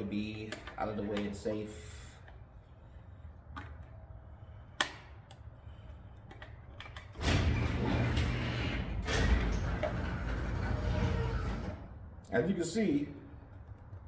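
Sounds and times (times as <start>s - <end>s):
garage door opener running: 7.1s - 12.2s.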